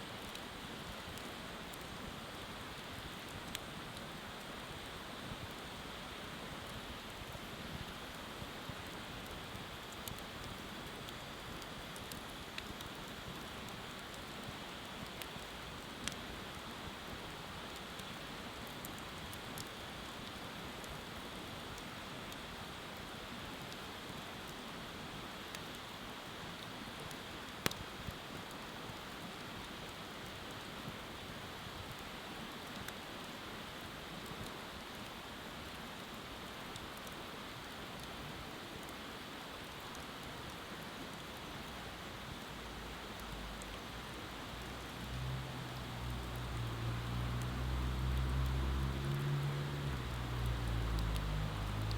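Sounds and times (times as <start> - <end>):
bonfire crackling: 0.0 - 51.9
river water rushing: 44.8 - 51.9.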